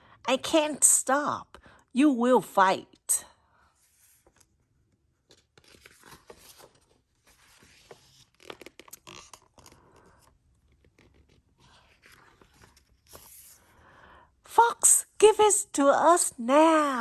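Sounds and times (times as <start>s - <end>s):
book pages turning: 3.7s - 13.8s.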